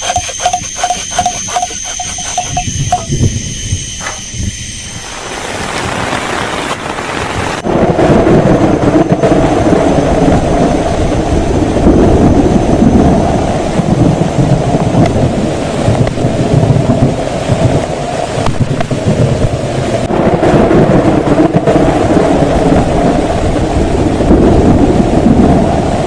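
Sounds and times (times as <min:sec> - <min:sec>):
heavy rain: 0:04.5 - 0:26.0
rolling thunder: 0:05.5 - 0:26.0.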